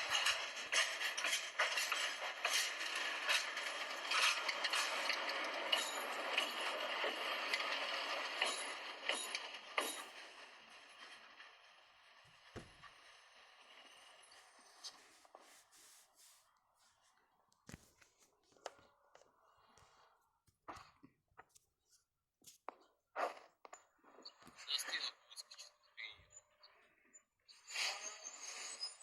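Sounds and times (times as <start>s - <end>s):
train wheels clattering on rails: 0.0s - 14.4s.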